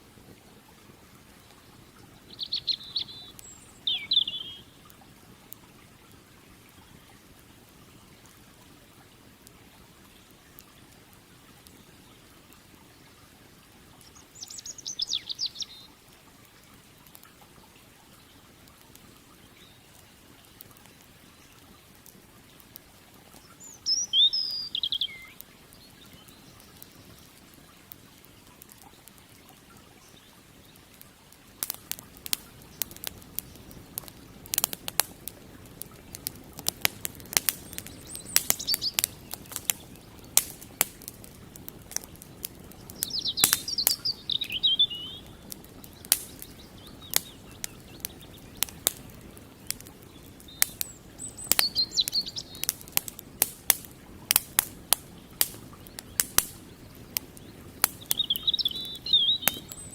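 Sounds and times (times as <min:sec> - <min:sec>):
campfire crackling and popping: 0:00.0 - 0:59.9
songbird chirping: 0:01.5 - 0:04.9, 0:14.0 - 0:16.0, 0:23.2 - 0:27.6, 0:35.9 - 0:53.2, 0:54.1 - 0:59.9.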